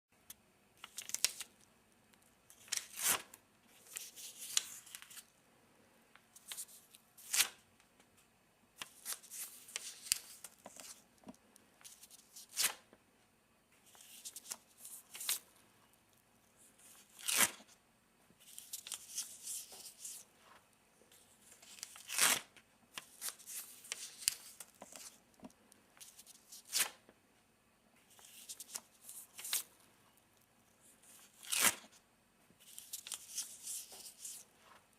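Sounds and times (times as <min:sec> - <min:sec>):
paper rustling and crinkling: 0:18.4 - 0:20.6, 0:32.6 - 0:34.9.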